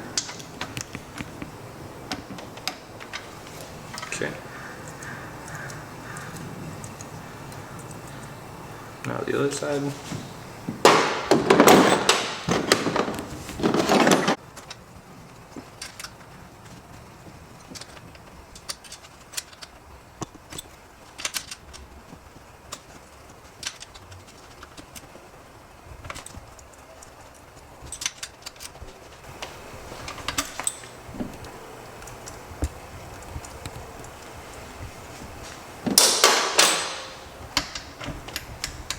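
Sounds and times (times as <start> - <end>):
metal tools clattering on workbench: 10.0 - 14.4, 35.8 - 38.4.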